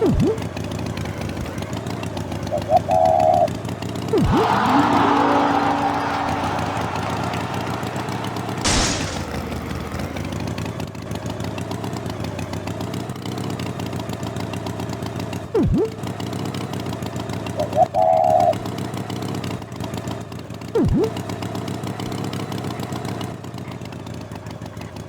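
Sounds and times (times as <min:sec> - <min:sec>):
engine-like drone: 0:00.0 - 0:21.9
swooping glide: 0:04.1 - 0:10.1.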